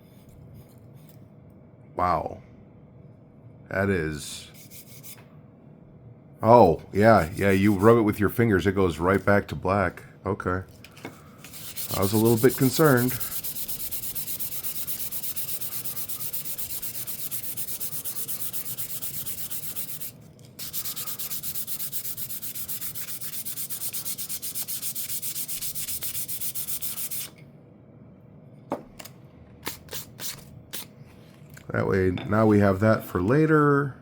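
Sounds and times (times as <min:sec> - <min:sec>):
sandpaper rubbing on wood: 0:11.5 - 0:27.3.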